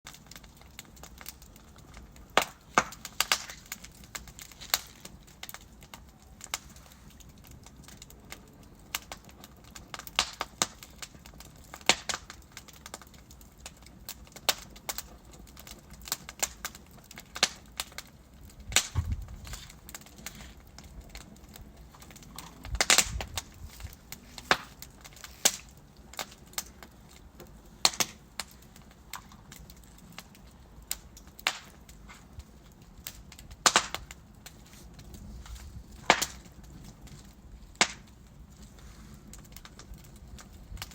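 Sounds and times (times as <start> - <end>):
wood fire crackling: 0.1 - 40.9.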